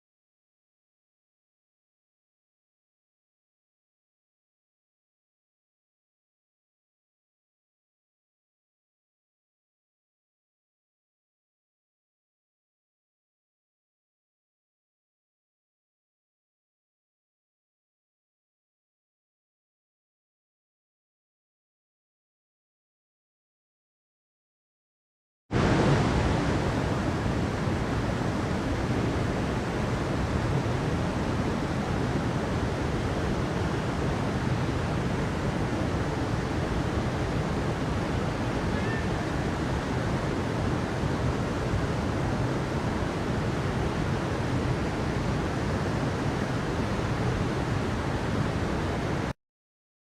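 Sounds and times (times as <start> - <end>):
steady rushing noise: 25.5 - 49.4.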